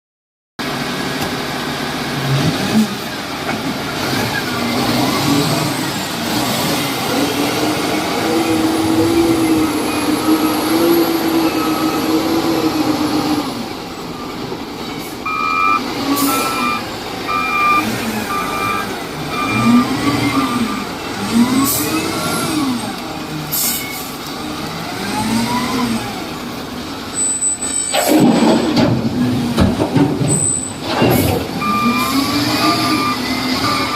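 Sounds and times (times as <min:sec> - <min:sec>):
wheel loader diesel engine revving: 0:00.6 - 0:33.9
reversing alarm beeping: 0:08.9 - 0:12.5, 0:15.2 - 0:21.7, 0:30.3 - 0:33.9.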